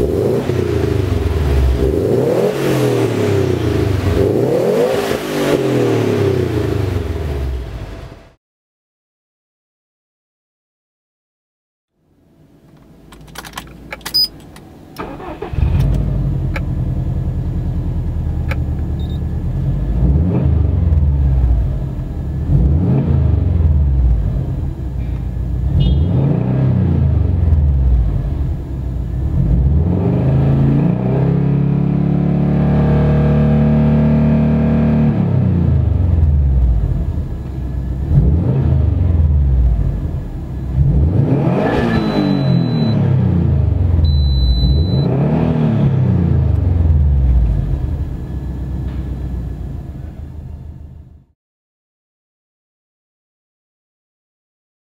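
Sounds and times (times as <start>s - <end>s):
car engine starting and revving: 0.0s - 8.4s, 13.1s - 51.3s
clicks: 12.7s - 15.1s.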